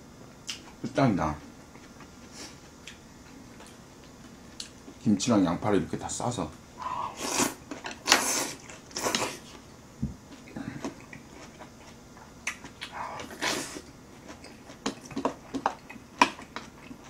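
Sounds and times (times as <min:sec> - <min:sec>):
person chewing noodles: 0:10.3 - 0:17.0.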